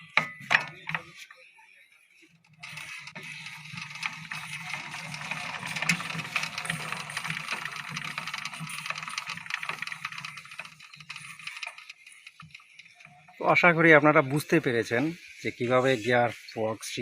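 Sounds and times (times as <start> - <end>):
gears rattling and clicking: 2.4 - 14.5.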